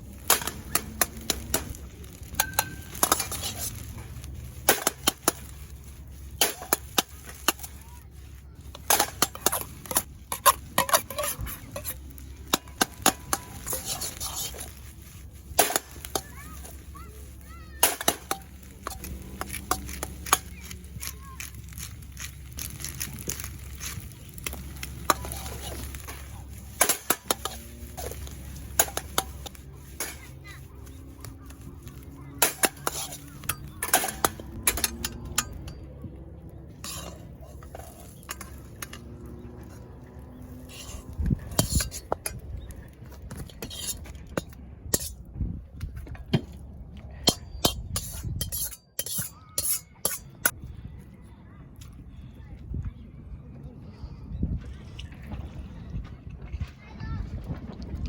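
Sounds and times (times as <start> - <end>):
metal utensils clinking on a pan: 0.2 - 14.9, 15.5 - 36.1, 36.8 - 42.6, 43.3 - 45.2, 47.2 - 50.6.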